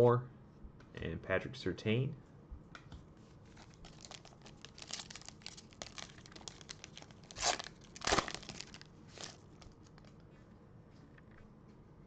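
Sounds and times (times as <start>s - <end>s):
cards and wrapper crinkling: 3.5s - 10.2s.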